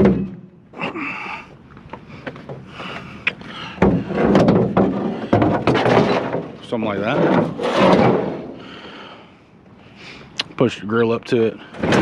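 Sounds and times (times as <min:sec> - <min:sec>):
metal scraping and rattling: 0:03.8 - 0:08.7.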